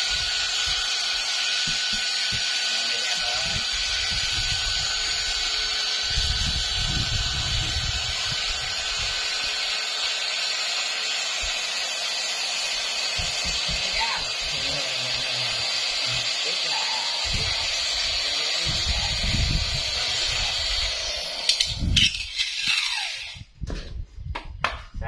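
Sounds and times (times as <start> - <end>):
electric air pump running: 0.0 - 23.6.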